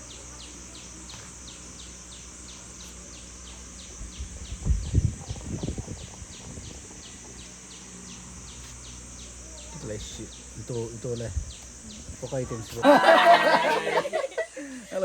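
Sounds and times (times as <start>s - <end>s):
high insect buzz: 0.0s - 15.0s
low thumps and rumbles: 3.5s - 9.4s, 10.2s - 12.4s.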